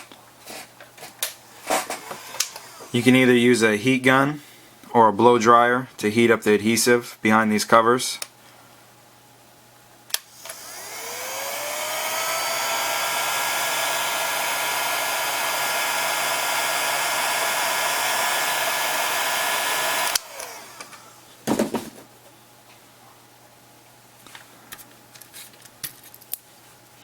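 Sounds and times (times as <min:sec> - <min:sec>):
hot-air blower motor whine: 0:01.5 - 0:03.3, 0:10.1 - 0:21.4.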